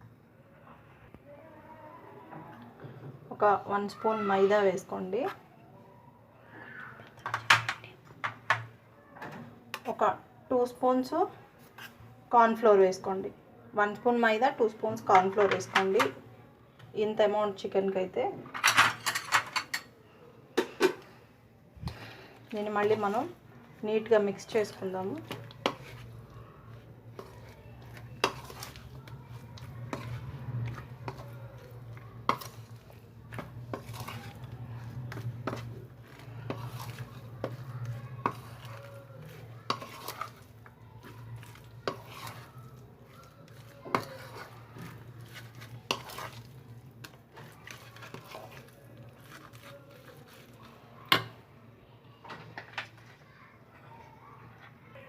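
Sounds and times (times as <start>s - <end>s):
spoon stirring chicken in bowl: 24.0s - 51.4s.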